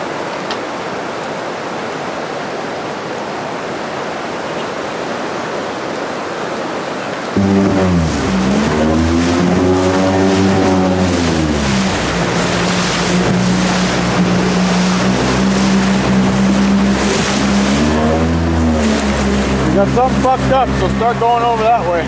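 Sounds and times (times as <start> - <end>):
rushing water: 0.0 - 22.0
boat engine running: 7.3 - 22.0
wind noise: 7.4 - 19.8.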